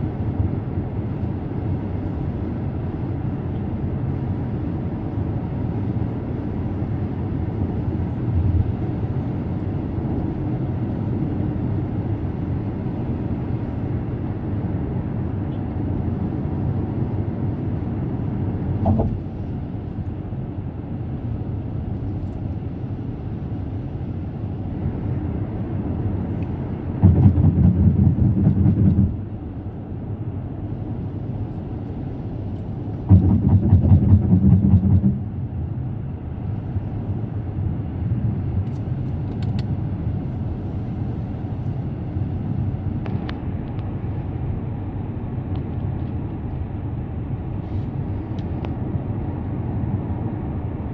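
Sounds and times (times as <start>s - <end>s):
tyre and road noise: 18.8s - 19.6s, 26.5s - 29.6s, 32.8s - 40.6s
rapid rhythmic tyre drumming: 27.0s - 29.2s, 33.1s - 35.3s.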